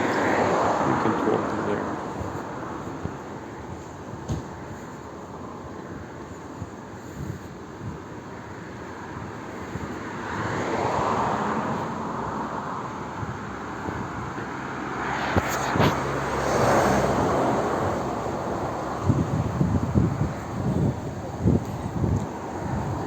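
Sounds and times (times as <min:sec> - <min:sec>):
vehicle rushing past: 0:00.0 - 0:03.2, 0:10.0 - 0:23.0.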